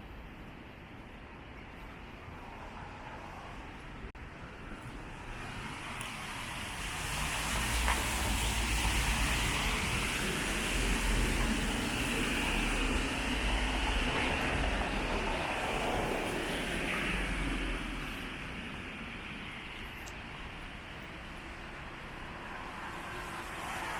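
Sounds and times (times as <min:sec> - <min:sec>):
tyres hissing on wet road: 0:05.1 - 0:23.9.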